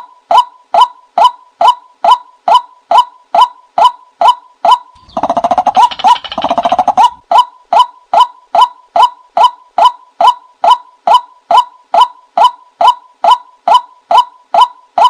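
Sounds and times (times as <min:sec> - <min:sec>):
bird calling hollow notes: 0:04.9 - 0:07.5
bird rattling call: 0:05.0 - 0:07.2.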